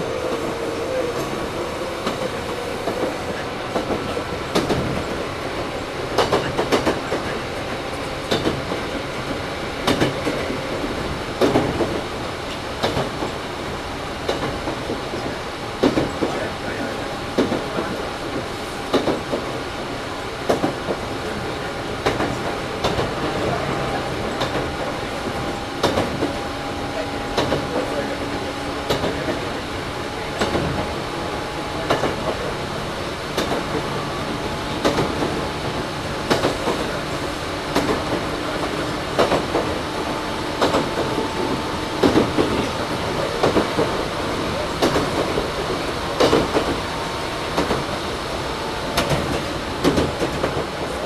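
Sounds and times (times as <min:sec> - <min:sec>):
train running whine and rumble: 0:00.0 - 0:51.0
wheels clicking over rail joints: 0:30.3 - 0:51.0.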